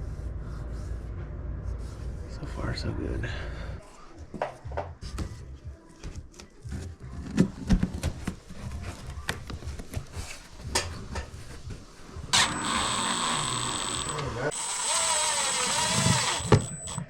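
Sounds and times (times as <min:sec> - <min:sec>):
hands handling objects: 0:06.1 - 0:12.0.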